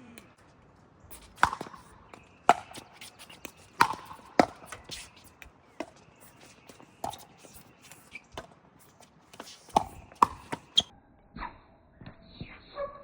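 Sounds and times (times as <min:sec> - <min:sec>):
paddles striking plastic ball: 0:01.1 - 0:10.9.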